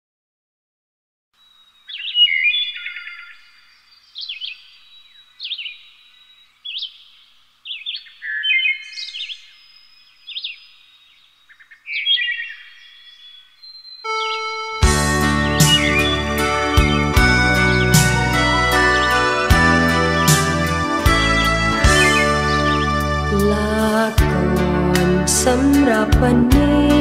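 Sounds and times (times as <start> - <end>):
bird chirping: 1.4 - 24.2
music: 14.1 - 27.0.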